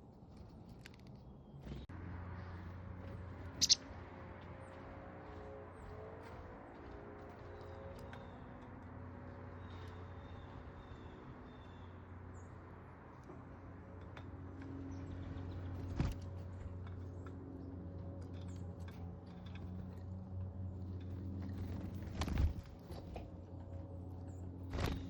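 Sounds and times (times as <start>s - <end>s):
low mechanical hum: 0.0s - 25.0s
faint bird chirps: 3.5s - 3.9s.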